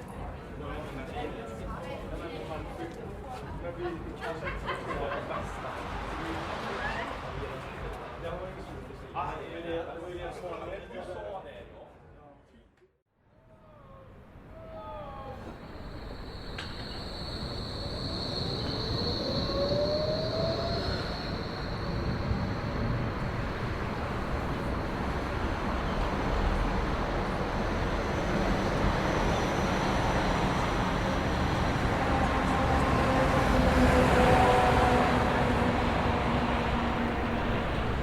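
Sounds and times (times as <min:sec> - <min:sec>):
high squeal: 0:14.5 - 0:38.0
whining tones: 0:14.8 - 0:38.0
train running: 0:14.9 - 0:38.0.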